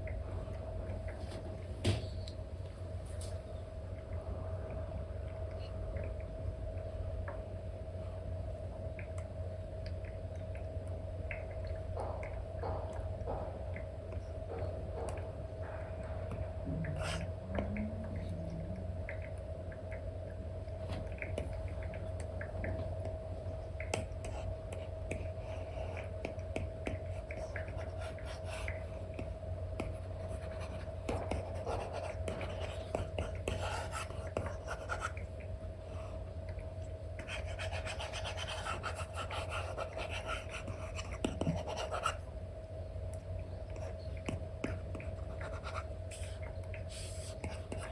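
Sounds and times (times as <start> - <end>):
steady low hum: 0.0 - 47.9
stylus scratching on screen: 37.2 - 42.2, 44.7 - 46.4.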